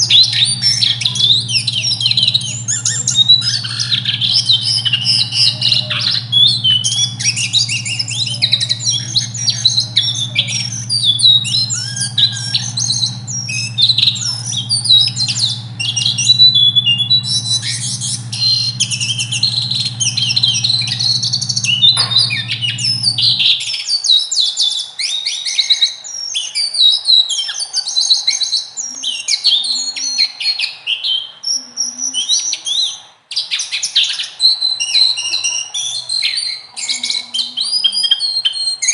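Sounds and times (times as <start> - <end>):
low steady hum: 0.0 - 23.6
songbirds chirping and trilling: 0.0 - 38.9.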